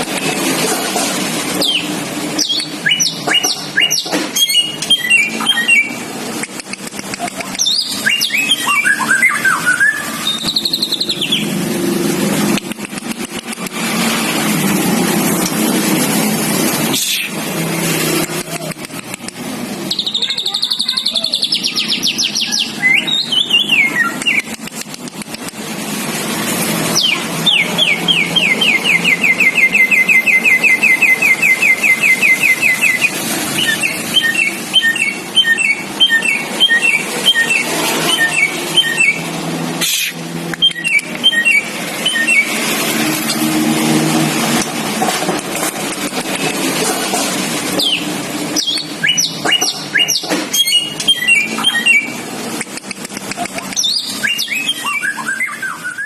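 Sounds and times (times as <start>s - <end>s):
bird singing trills and whistles: 1.6s - 6.1s, 7.5s - 11.6s, 19.8s - 24.6s, 26.9s - 39.3s, 40.6s - 42.7s, 47.7s - 52.2s, 53.6s - 56.0s
sharp click: 6.4s - 7.7s, 12.5s - 13.8s, 18.2s - 19.4s, 24.2s - 25.6s, 52.5s - 53.9s.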